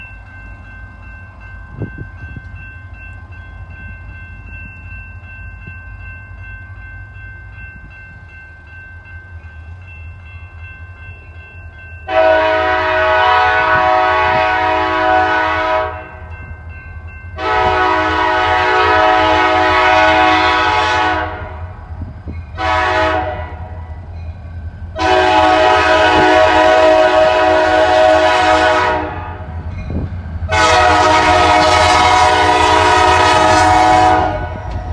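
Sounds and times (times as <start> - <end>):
diesel locomotives rumbling: 0.0 - 34.9
multi-chime locomotive air horn: 12.0 - 16.3, 17.4 - 21.8, 22.5 - 23.9, 25.0 - 34.9.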